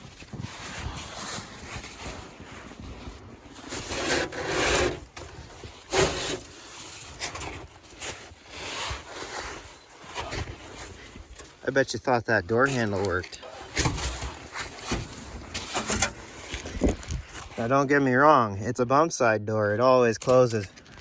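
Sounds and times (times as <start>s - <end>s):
boots wading through snow: 0.0s - 4.2s.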